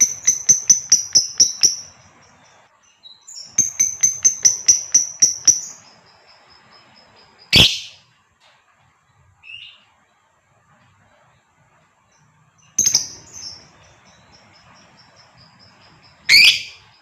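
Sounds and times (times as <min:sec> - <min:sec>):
lovebird chirping: 0:00.0 - 0:08.2, 0:09.4 - 0:10.0, 0:12.1 - 0:17.0
harsh bird call: 0:07.5 - 0:08.1, 0:16.2 - 0:17.0.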